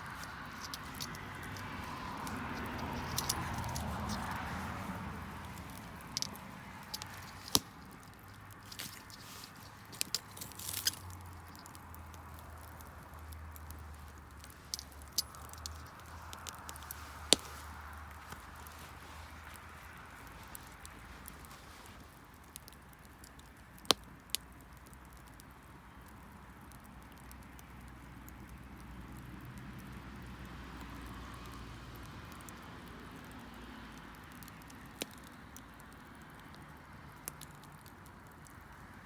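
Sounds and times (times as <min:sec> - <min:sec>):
sharp pops of fire: 0:00.0 - 0:26.0
wood bonfire crackling: 0:00.0 - 0:39.0.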